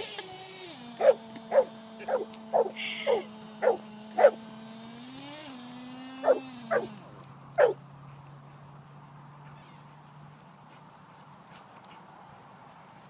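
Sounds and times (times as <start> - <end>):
steady whine: 0.0 - 7.9
dog barking: 1.0 - 4.4, 6.2 - 6.9, 7.6 - 7.8.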